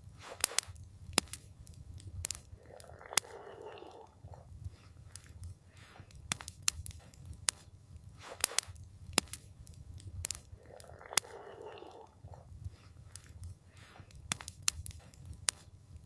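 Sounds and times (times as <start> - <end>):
campfire crackling and popping: 0.0 - 16.0
low fire rumble: 0.0 - 16.0.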